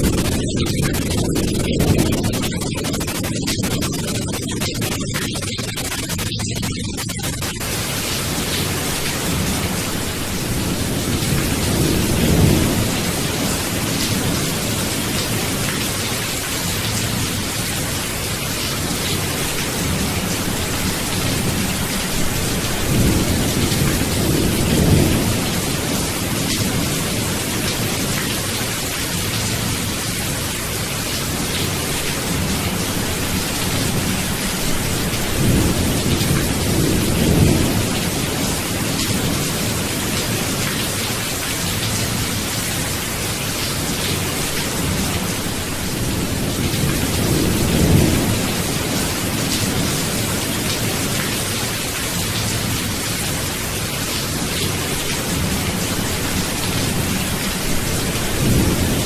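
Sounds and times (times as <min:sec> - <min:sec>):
heavy rain: 0:00.0 - 0:59.0
low rumbles of thunder: 0:09.3 - 0:15.8, 0:32.3 - 0:40.8.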